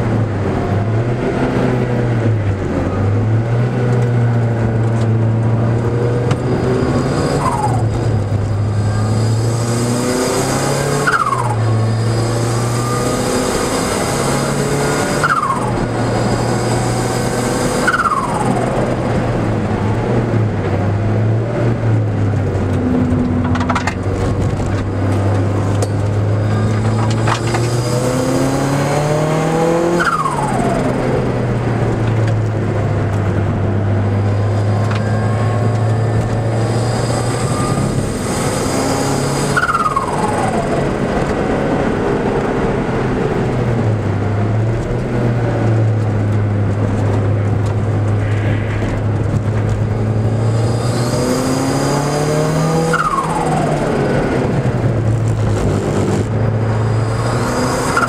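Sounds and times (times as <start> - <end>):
car engine revving: 0.0 - 58.0
low cabin drone: 46.9 - 51.4.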